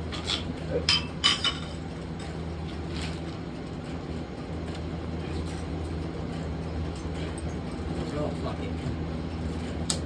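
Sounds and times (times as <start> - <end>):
rake clinking on ceiling fan: 5.2 - 10.0.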